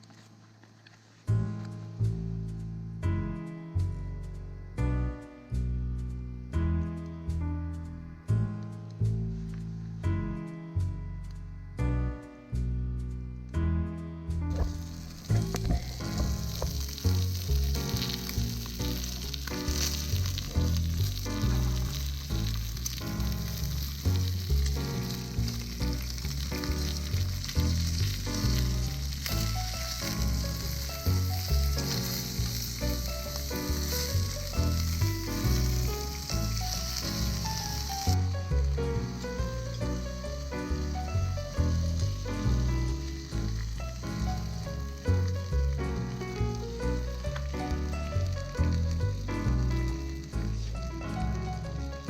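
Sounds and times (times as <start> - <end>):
background music with beat: 14.5 - 22.0
food sizzling over campfire: 14.5 - 52.0.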